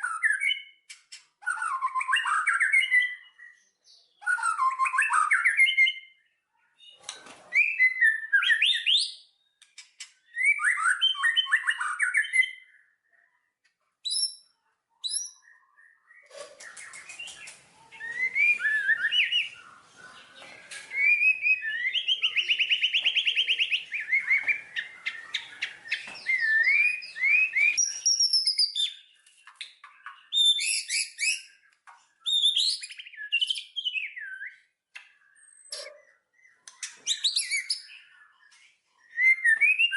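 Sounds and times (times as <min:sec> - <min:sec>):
songbird singing: 0:14.0 - 0:39.9.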